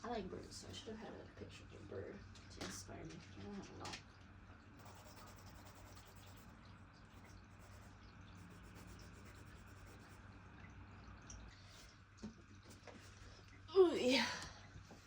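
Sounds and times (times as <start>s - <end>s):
drawing tool scratching on paper: 4.8s - 6.5s, 7.2s - 10.2s.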